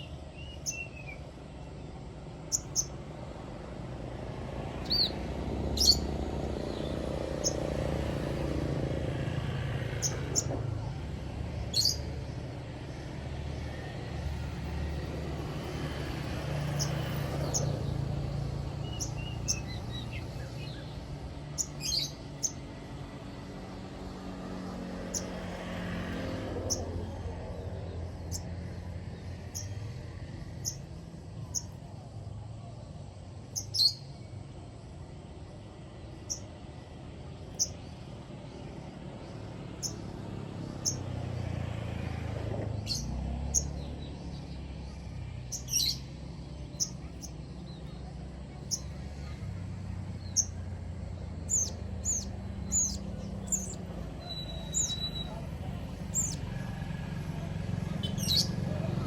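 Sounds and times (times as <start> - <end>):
bird high chirps: 0.0 - 1.2, 2.4 - 3.0, 4.8 - 6.1, 6.7 - 7.6, 11.6 - 12.1, 16.8 - 22.7, 29.4 - 29.8, 30.6 - 31.8, 33.5 - 34.3, 39.8 - 40.0, 45.5 - 46.1, 46.7 - 49.4, 50.2 - 50.6, 51.4 - 56.5, 57.9 - 58.8.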